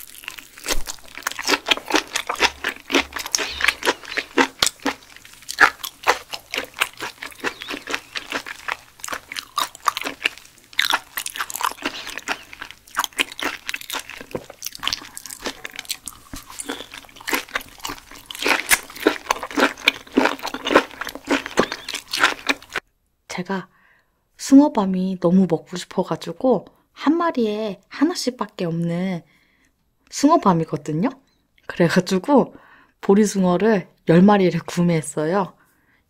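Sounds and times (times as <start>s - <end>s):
crunchy chewing: 0.0s - 22.8s.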